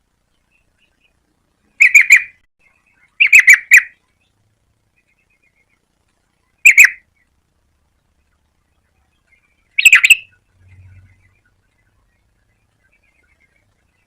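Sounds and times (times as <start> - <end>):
bird singing bright notes: 9.2 - 11.5.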